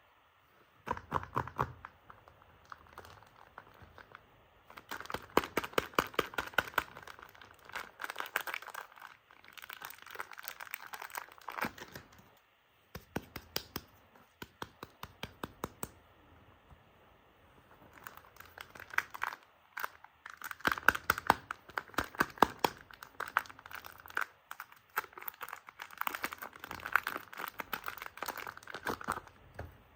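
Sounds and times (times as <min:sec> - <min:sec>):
packaging crinkling and tearing: 0:02.6 - 0:12.3, 0:17.8 - 0:29.4.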